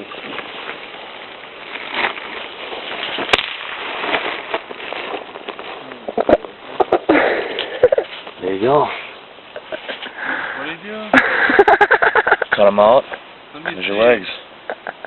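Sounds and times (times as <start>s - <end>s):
bag crinkling and rustling: 0.0s - 6.8s.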